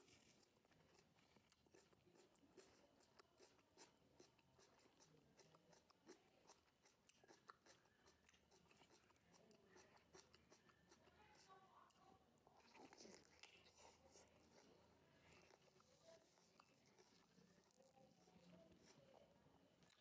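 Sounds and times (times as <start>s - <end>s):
chewing raw tomato: 0.0s - 20.0s.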